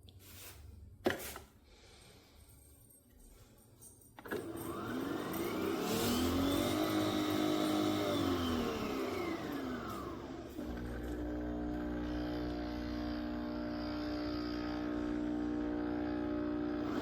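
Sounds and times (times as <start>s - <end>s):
coffee machine motor whine: 4.2s - 17.0s.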